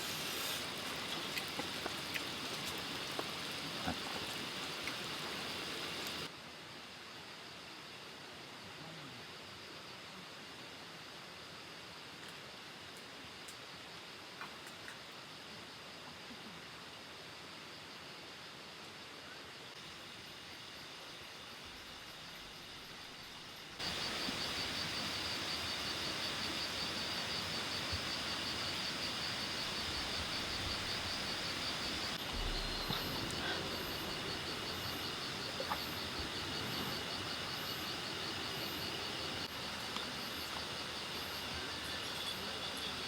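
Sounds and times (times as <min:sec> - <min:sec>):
insects trilling: 0:00.0 - 0:06.4, 0:19.3 - 0:43.0
constant hiss: 0:00.0 - 0:43.0.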